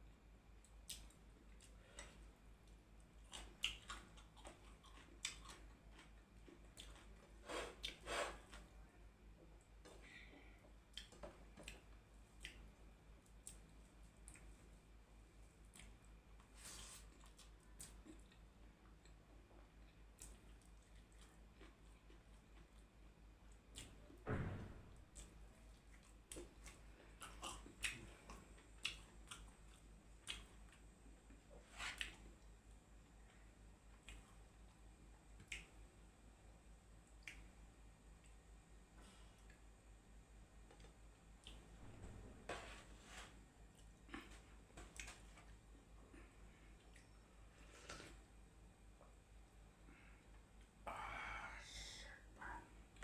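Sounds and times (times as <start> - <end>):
person chewing food: 0.6 - 8.6, 10.9 - 14.6, 15.5 - 23.0, 25.2 - 32.5, 33.9 - 35.7, 40.8 - 41.7, 43.7 - 48.3
person chewing: 0.9 - 8.5, 25.9 - 30.8, 43.8 - 45.5
wet mouth clicks and smacks: 37.2 - 37.5.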